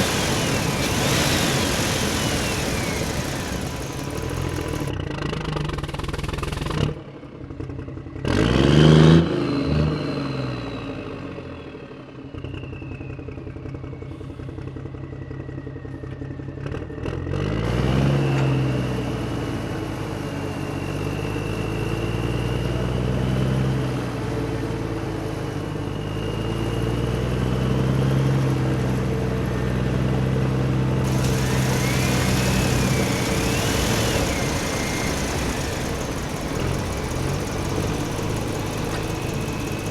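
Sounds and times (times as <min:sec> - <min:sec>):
high whine of small electric motors: 0:00.0 - 0:04.9, 0:31.0 - 0:39.9
toy engine idling and revving: 0:00.0 - 0:06.8, 0:31.0 - 0:39.9.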